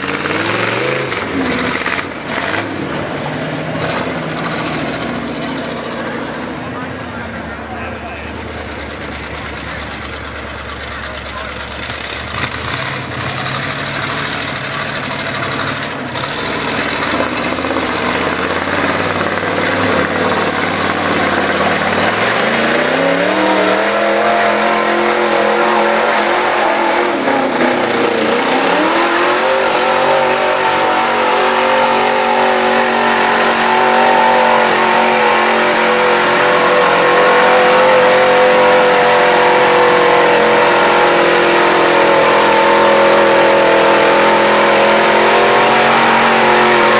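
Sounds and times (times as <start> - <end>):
truck engine revving: 0.0 - 46.9.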